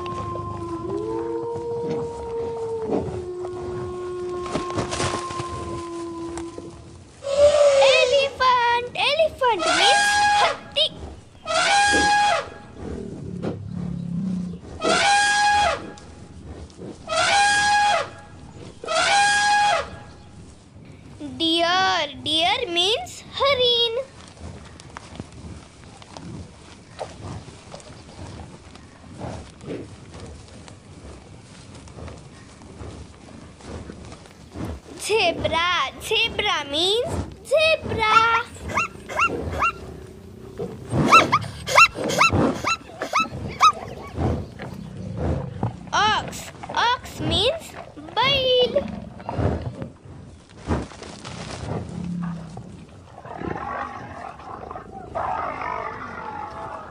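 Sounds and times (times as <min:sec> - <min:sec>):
elephant trumpeting: 0:00.0 - 0:08.5, 0:09.4 - 0:12.9, 0:14.8 - 0:16.0, 0:17.0 - 0:20.1, 0:37.3 - 0:49.3, 0:52.0 - 0:56.9
zebra barking yelps: 0:38.0 - 0:39.8, 0:41.0 - 0:44.2.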